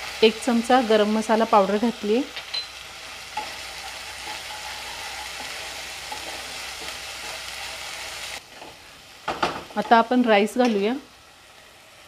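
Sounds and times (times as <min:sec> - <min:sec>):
paste sizzling in oil: 0:00.0 - 0:12.0
spatula scraping pan: 0:03.0 - 0:08.4.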